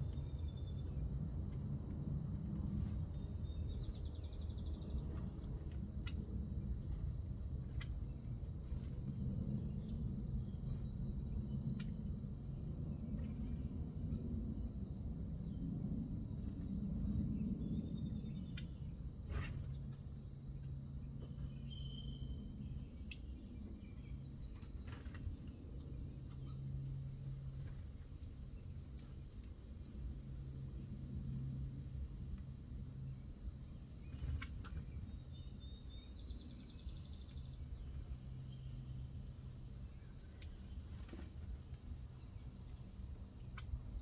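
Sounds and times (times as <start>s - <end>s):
crickets trilling: 0.0s - 44.0s
bird chirp: 2.8s - 6.3s, 21.2s - 25.2s, 33.0s - 39.1s.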